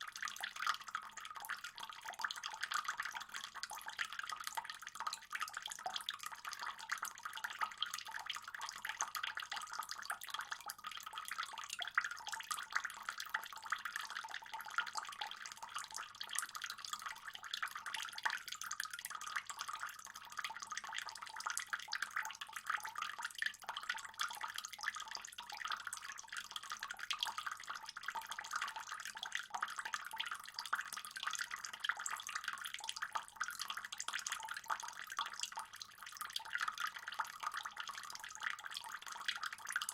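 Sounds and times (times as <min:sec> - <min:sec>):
pond water trickling and splashing: 0:00.0 - 0:39.9.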